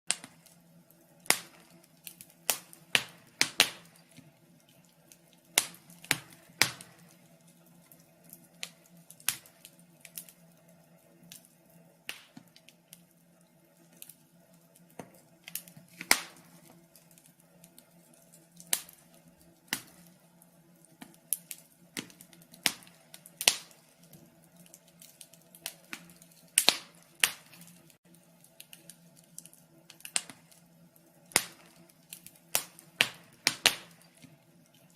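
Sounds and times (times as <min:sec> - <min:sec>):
fire crackling and popping: 0:00.1 - 0:34.9.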